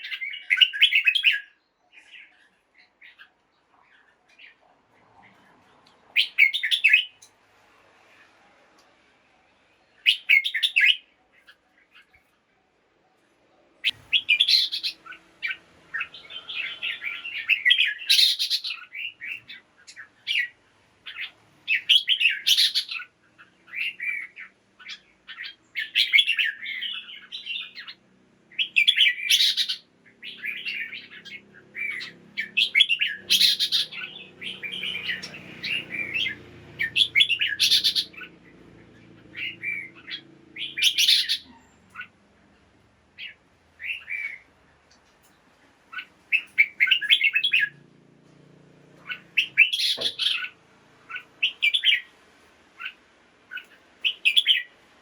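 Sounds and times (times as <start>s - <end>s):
bulbul chirping song: 6.2s - 7.3s, 9.9s - 12.1s, 13.8s - 42.2s, 45.9s - 47.8s, 49.0s - 52.2s, 52.8s - 54.8s.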